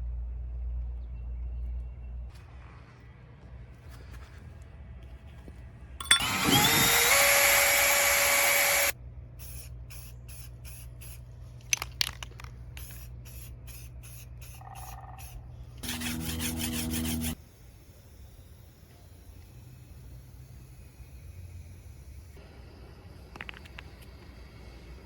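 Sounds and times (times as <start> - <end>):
power tool hissing: 6.2 - 8.9, 15.8 - 22.4.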